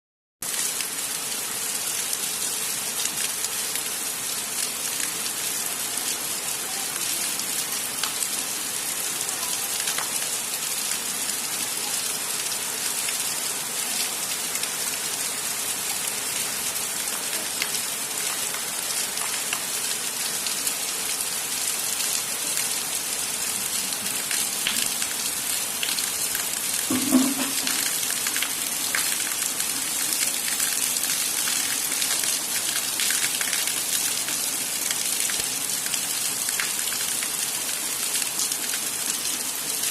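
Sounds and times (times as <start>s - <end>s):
heavy rain falling: 0.4s - 39.9s.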